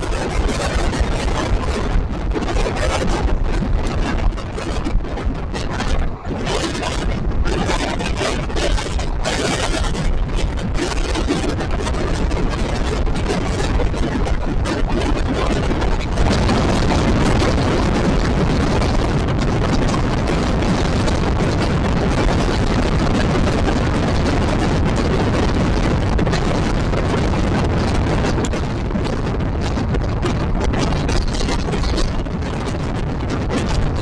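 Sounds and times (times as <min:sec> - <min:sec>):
rushing air: 0:00.0 - 0:34.0.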